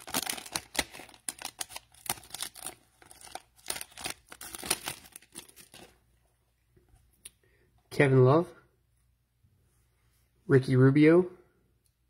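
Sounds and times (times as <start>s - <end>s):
cellophane wrapper crinkling: 0.0s - 6.0s.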